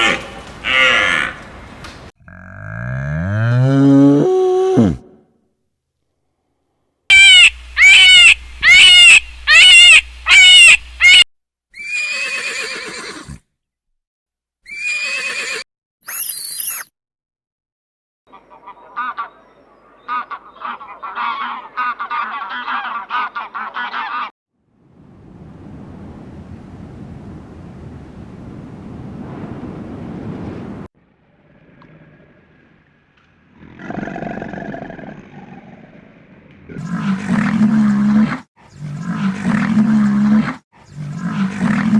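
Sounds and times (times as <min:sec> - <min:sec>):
animal bellow: 0:00.0 - 0:01.6, 0:02.2 - 0:05.2, 0:31.2 - 0:41.9
farm animal calls: 0:00.0 - 0:02.1, 0:07.1 - 0:11.2
wind rumble on microphone: 0:24.8 - 0:30.9.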